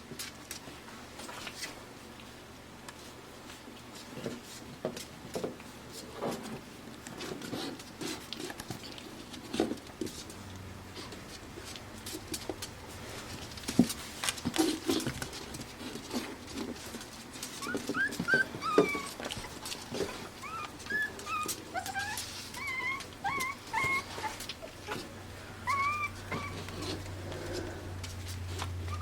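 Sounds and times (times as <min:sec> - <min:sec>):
puppies whimpering and yipping: 0:17.4 - 0:27.6, 0:28.6 - 0:29.0.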